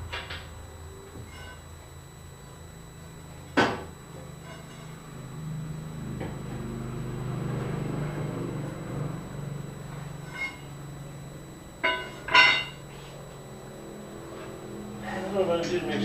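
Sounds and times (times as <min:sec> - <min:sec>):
low steady hum: 0:00.0 - 0:16.0
metal clank with ring: 0:01.2 - 0:01.7, 0:03.6 - 0:05.0, 0:10.2 - 0:10.7, 0:11.8 - 0:12.9.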